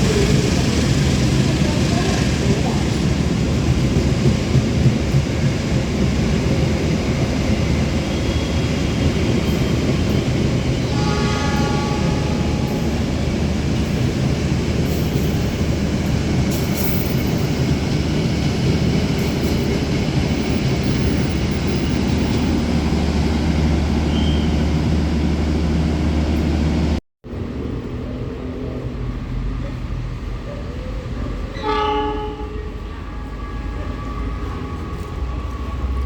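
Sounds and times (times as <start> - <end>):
train rumbling past on rails: 0.0 - 36.0
train horn blast: 10.8 - 13.0, 31.6 - 35.4.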